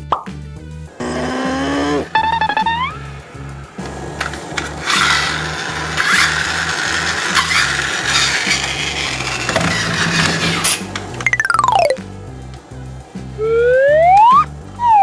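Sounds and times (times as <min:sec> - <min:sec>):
background music with bass line: 0:00.0 - 0:15.0
rough rasping scraping: 0:00.9 - 0:11.5.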